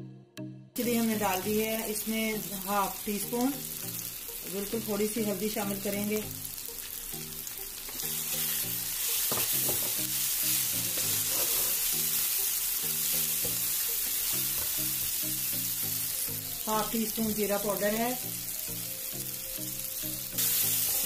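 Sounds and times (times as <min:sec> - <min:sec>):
soft background music: 0:00.0 - 0:21.0
vegetables sizzling in hot oil: 0:00.8 - 0:21.0
spatula stirring in pan: 0:07.9 - 0:12.1.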